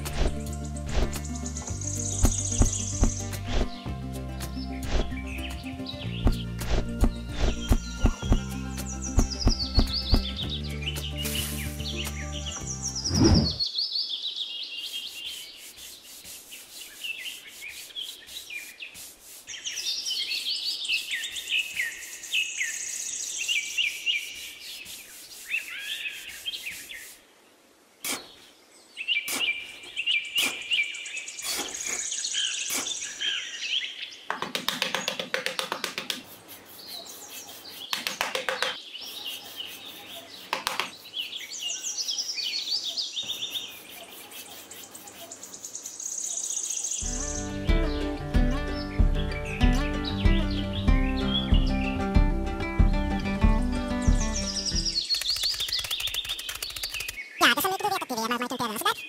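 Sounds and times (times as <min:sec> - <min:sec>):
small birds chirping: 0:00.0 - 0:59.0
sand scraped over plastic liner: 0:14.8 - 0:22.5, 0:23.3 - 0:27.2, 0:35.8 - 0:42.2, 0:43.3 - 0:46.0
sharp clicks: 0:55.0 - 0:57.2.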